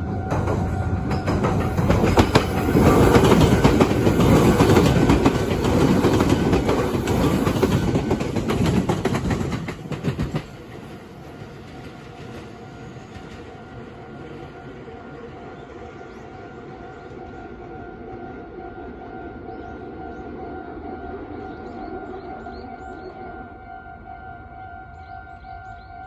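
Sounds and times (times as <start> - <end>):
train rumble: 0.0 - 26.0
train wheels clattering over rail joints: 0.2 - 13.6.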